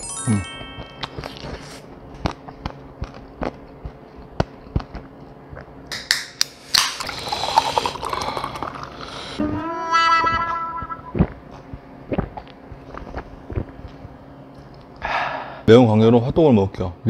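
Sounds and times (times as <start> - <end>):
chewing crunchy fried chicken: 1.0 - 5.8
cola fizzing: 6.8 - 9.4
liquid pouring into a glass: 7.0 - 9.4.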